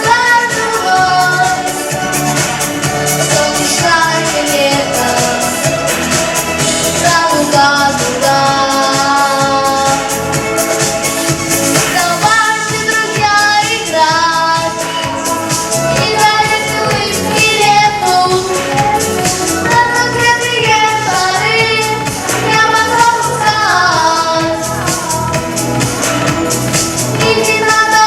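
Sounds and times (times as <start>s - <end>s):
boy singing: 0.0s - 1.9s, 3.1s - 5.6s, 6.9s - 10.3s, 11.8s - 25.6s, 27.2s - 28.0s
backing music with steady beat: 0.0s - 28.0s.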